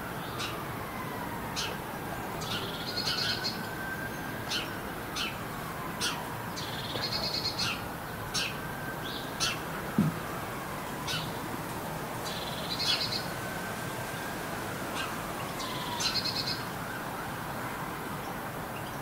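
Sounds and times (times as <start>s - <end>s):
distant siren: 0.0s - 19.0s
small birds chirping: 6.0s - 10.2s, 12.2s - 13.3s, 15.0s - 16.6s
low thump: 10.0s - 10.2s.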